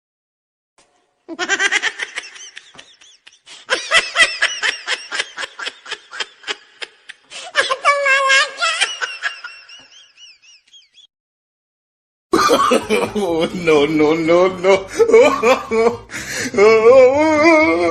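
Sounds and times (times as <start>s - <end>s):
high-pitched voice laughing: 1.3s - 9.8s.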